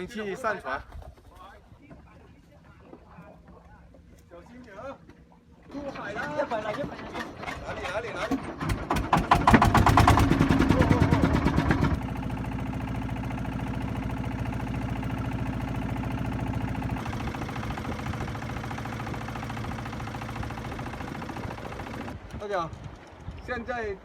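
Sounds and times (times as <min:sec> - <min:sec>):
boat engine running: 0:01.7 - 0:23.4.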